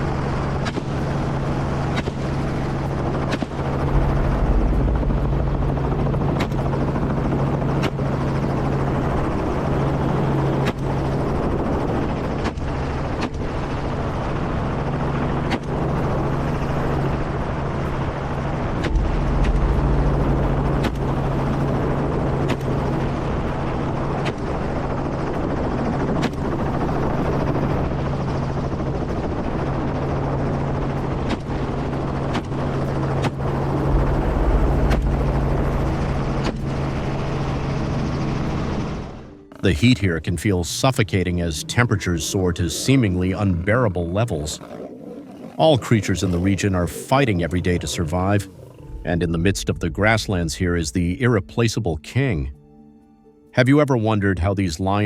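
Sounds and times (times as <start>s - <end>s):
helicopter rotor and engine drone: 0.0s - 55.0s.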